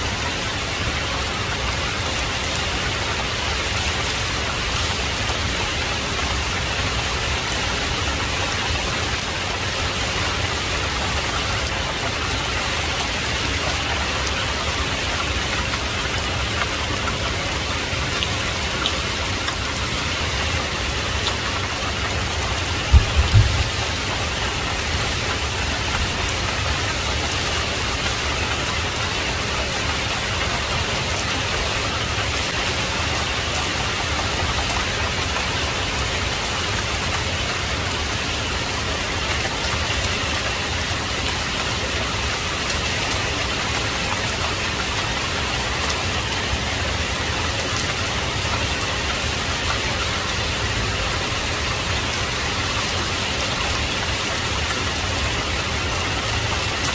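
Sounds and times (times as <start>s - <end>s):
heavy rain hissing: 0.0s - 56.9s
low thump: 22.9s - 23.8s.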